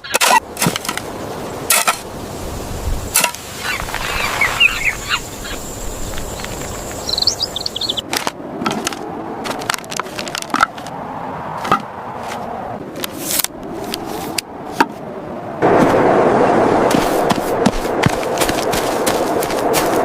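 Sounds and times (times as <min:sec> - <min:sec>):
steady rushing noise: 0:00.4 - 0:20.0
low rolling rumble: 0:15.5 - 0:20.0.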